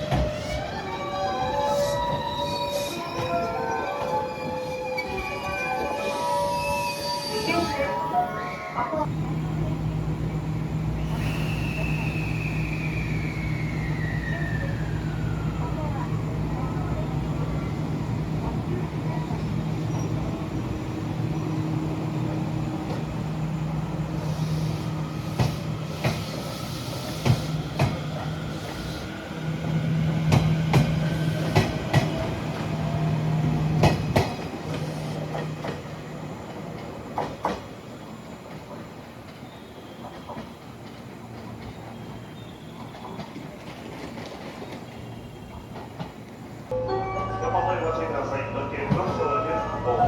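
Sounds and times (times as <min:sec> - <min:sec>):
low train hum: 0:00.0 - 0:50.0
train wheels clacking on rails: 0:24.2 - 0:37.8.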